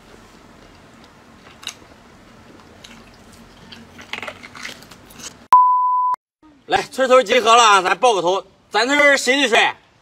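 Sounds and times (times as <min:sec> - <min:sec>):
person chewing meat: 0:02.4 - 0:05.4.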